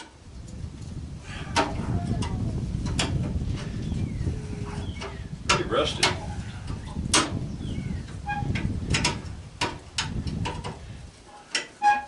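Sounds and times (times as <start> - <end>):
metallic clicks and knocks: 1.6 - 3.4, 5.0 - 7.4, 8.4 - 10.8, 11.4 - 12.0.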